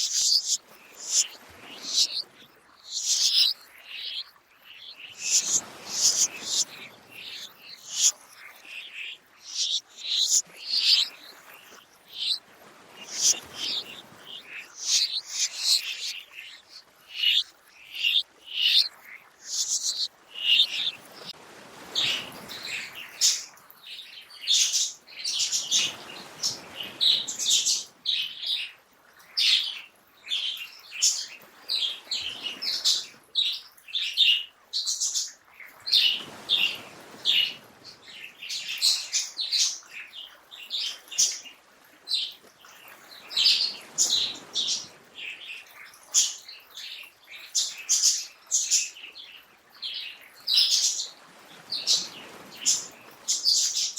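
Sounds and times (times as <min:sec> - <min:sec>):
small birds chirping: 0:00.0 - 0:21.4, 0:22.0 - 0:53.9
soft rushing noise: 0:05.1 - 0:08.1.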